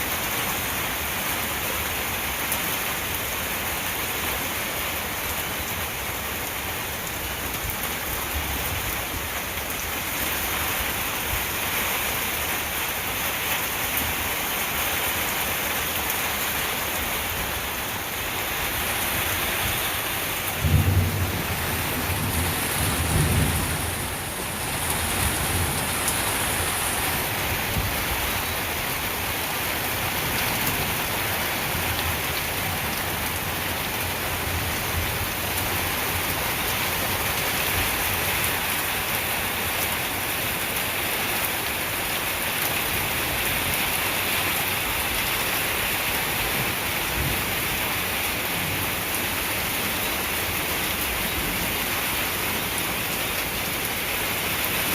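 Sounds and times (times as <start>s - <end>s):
steady rain falling: 0.0s - 54.9s
low rumble of thunder: 19.6s - 28.0s.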